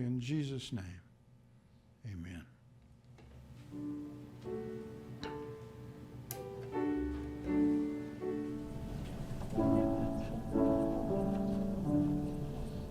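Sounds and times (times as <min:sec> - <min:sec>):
slow keyboard chords: 0:03.4 - 0:12.9.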